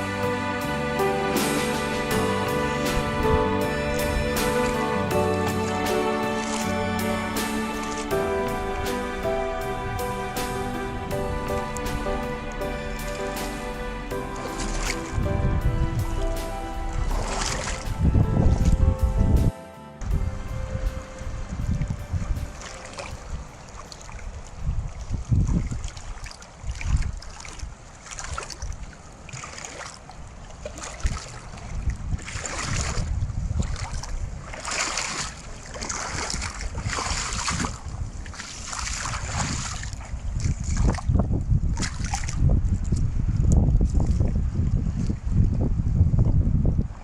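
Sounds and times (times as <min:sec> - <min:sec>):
ocean surf washing in: 0:00.0 - 0:25.1
wind buffeting microphone: 0:00.0 - 0:47.0.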